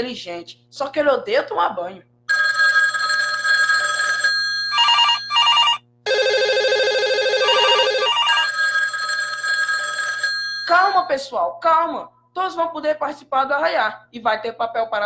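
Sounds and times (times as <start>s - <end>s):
electronic telephone ring tones: 2.3s - 11.1s.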